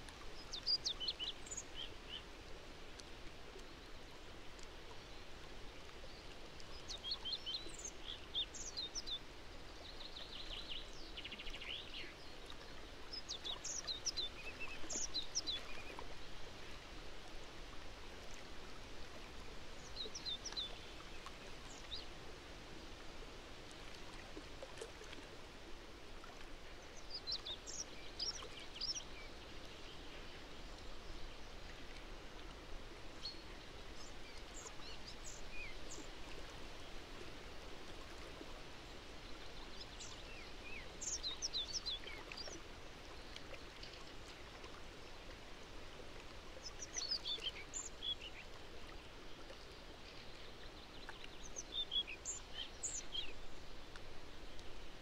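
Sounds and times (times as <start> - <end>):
songbird singing: 0.4 - 2.3, 6.0 - 16.2, 19.8 - 22.1, 26.6 - 32.5, 39.5 - 44.0, 46.6 - 48.6, 49.6 - 54.8.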